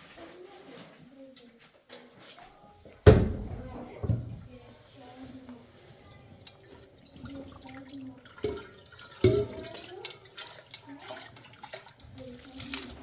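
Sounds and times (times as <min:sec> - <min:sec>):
knocks: 0:03.0 - 0:04.3
water dripping and splashing: 0:05.4 - 0:13.0.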